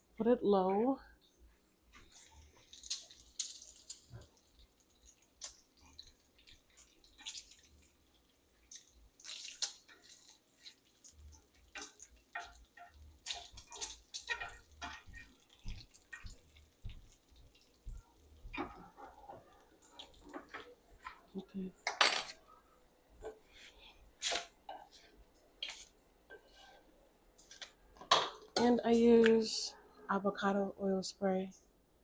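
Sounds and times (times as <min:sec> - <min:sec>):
bacon frying in a pan: 0:02.0 - 0:21.4.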